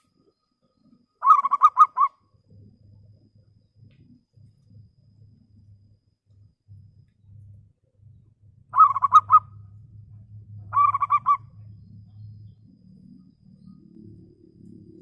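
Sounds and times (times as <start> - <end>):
faint low hum: 0.0 - 15.0
dove cooing: 1.2 - 2.1, 8.8 - 9.5, 10.6 - 11.6.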